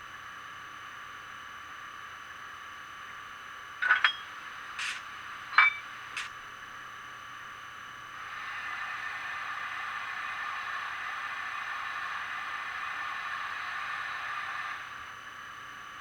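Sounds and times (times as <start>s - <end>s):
metallic clicks and clinks: 3.8s - 5.0s, 5.6s - 6.3s.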